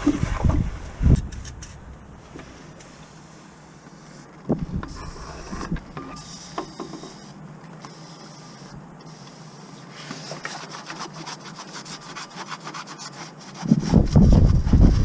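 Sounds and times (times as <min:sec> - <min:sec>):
low rumbling with knocks: 0:00.0 - 0:02.5, 0:13.7 - 0:15.0.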